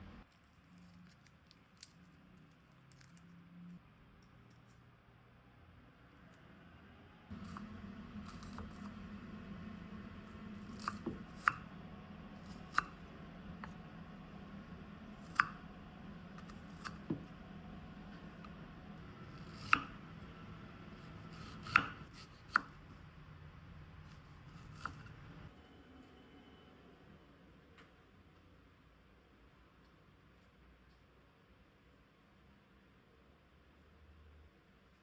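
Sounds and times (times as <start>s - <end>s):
steady low hum: 0.0s - 0.3s, 3.8s - 30.6s.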